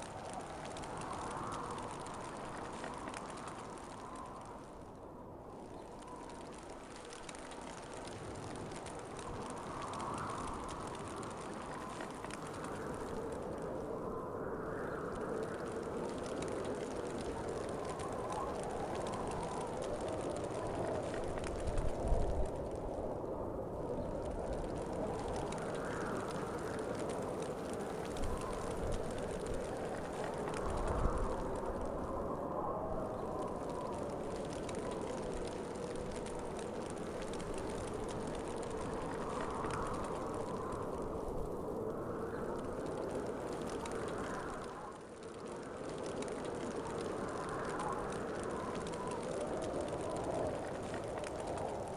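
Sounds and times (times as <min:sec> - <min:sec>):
faint scattered ticks: 0:00.0 - 0:51.9
wind blowing: 0:00.0 - 0:51.9
light ticks: 0:33.1 - 0:51.9.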